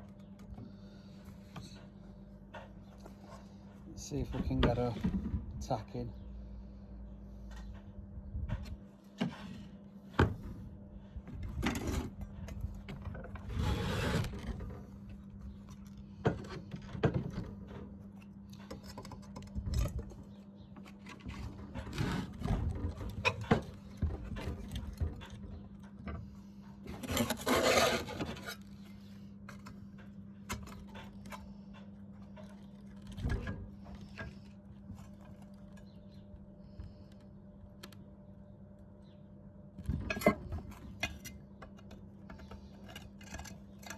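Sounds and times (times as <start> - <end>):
metal clicks and scrapes: 39.8 - 43.9.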